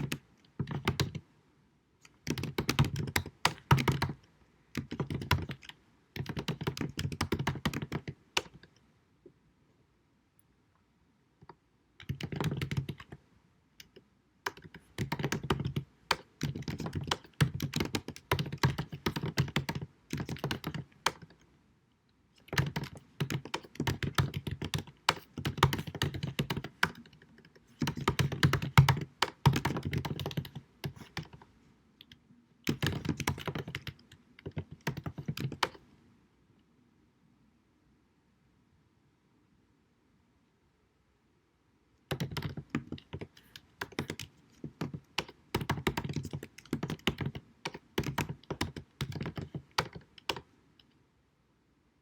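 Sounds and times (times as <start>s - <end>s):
keyboard typing: 0.0s - 1.2s, 2.0s - 4.2s, 4.8s - 8.7s, 11.4s - 13.2s, 13.8s - 21.4s, 22.4s - 35.9s, 42.1s - 50.5s.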